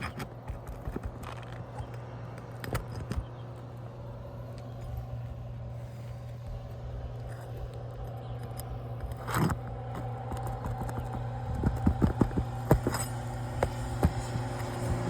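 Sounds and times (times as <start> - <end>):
pry tool scraping shingles: 0.0 - 3.5, 8.4 - 15.0
steady low hum: 0.0 - 15.0.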